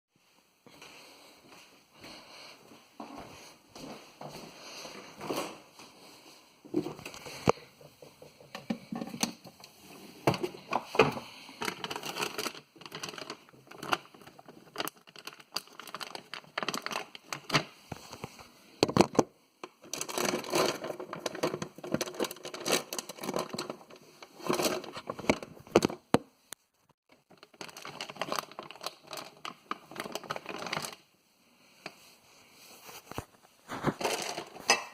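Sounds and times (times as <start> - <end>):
items knocking and scraping: 6.7 - 26.3, 27.1 - 31.0, 32.8 - 34.9
plastic packaging crinkling: 10.5 - 18.2, 19.7 - 26.0, 27.1 - 31.1, 32.9 - 34.7.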